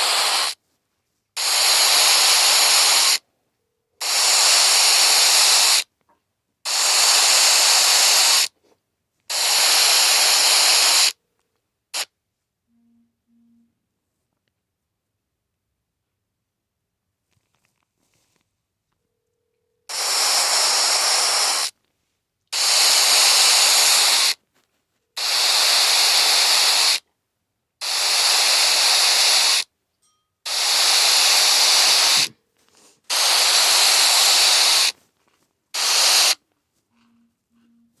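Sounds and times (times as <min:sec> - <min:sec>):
phone ringing with static hiss: 0:36.9 - 0:38.0.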